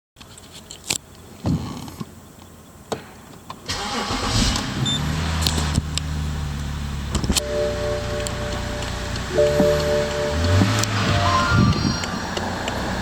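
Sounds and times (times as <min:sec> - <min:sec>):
car engine starting and idling: 0:03.6 - 0:13.0.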